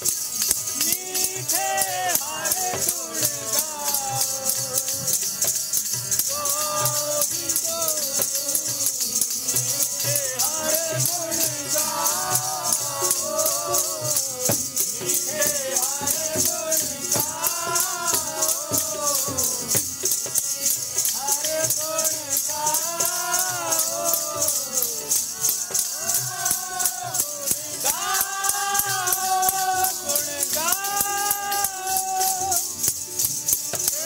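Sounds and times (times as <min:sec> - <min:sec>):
jingling shaken percussion: 0:00.0 - 0:34.0
voices singing a hymn: 0:00.4 - 0:34.0.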